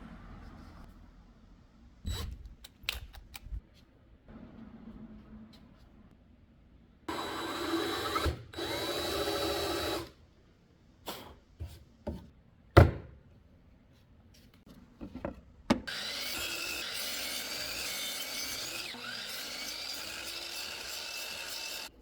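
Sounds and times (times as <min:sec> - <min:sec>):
power tool whining on wood: 0:07.1 - 0:10.1, 0:15.9 - 0:21.9.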